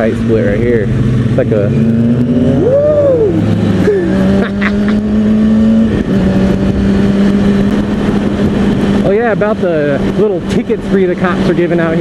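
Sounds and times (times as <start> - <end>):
motorcycle engine running: 0.0 - 12.0
rising and falling whine: 0.5 - 8.6
wind noise: 0.8 - 12.0.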